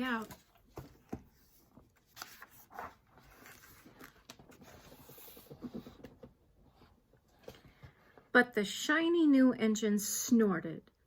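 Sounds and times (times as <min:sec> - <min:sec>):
paper page turning: 0:00.1 - 0:05.5.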